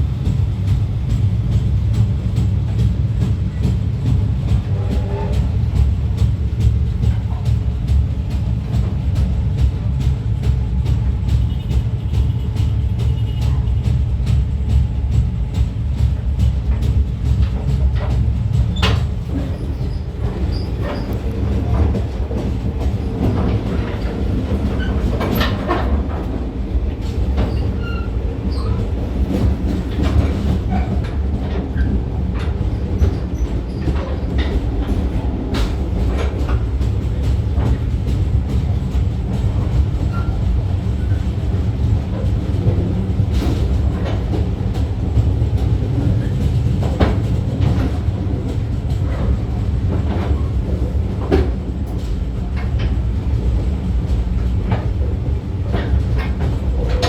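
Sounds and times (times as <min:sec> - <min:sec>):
train rumbling on rails: 0:00.0 - 0:57.0
wheels clicking and knocking: 0:16.4 - 0:57.0.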